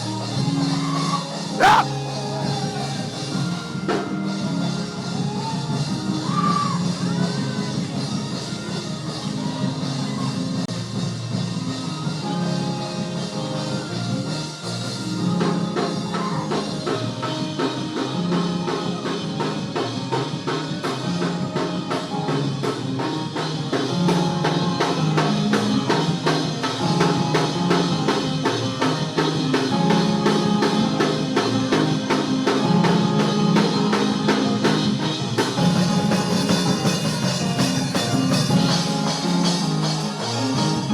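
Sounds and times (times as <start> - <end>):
drum kit beat: 1.6 - 2.0, 14.7 - 40.9.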